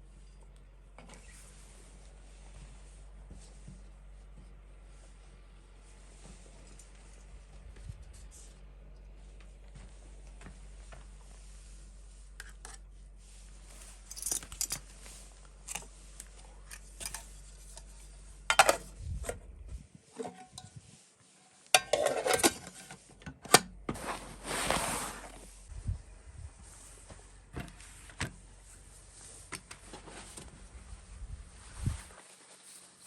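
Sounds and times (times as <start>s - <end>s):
scraping rustle: 23.9s - 33.0s.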